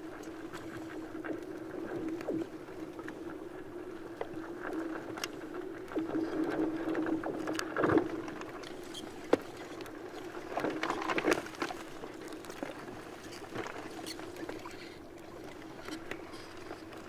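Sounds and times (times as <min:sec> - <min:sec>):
ice crackles and clicks: 0:00.2 - 0:15.0
ice floes grinding and squeaking: 0:13.2 - 0:15.0.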